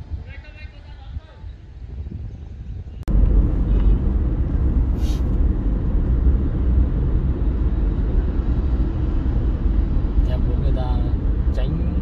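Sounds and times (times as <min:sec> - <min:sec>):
vehicle engine and road rumble: 0:00.0 - 0:12.0
short hiss: 0:04.9 - 0:05.4.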